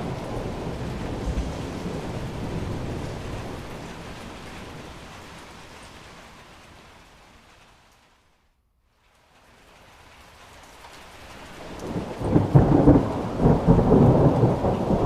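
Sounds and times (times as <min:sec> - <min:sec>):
thunder rumbling: 0:00.0 - 0:06.5, 0:11.6 - 0:15.0
rain hiss: 0:00.0 - 0:15.0.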